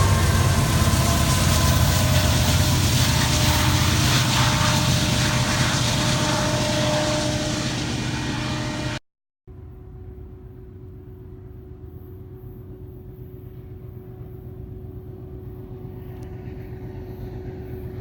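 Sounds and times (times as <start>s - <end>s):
freight train rumbling past: 0.0s - 9.0s, 15.8s - 18.0s
low hum: 0.0s - 18.0s.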